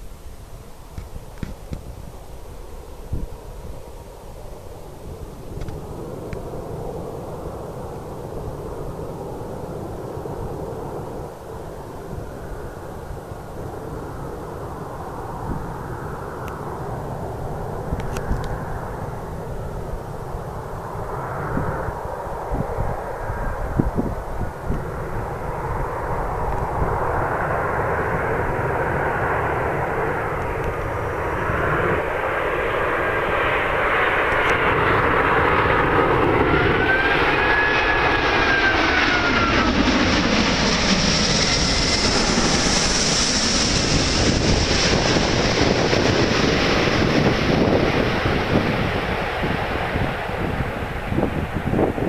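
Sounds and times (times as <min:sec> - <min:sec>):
jet engine noise: 0:00.0 - 0:52.0
wind buffeting microphone: 0:17.2 - 0:32.0, 0:34.3 - 0:52.0
high jet whine: 0:23.8 - 0:52.0.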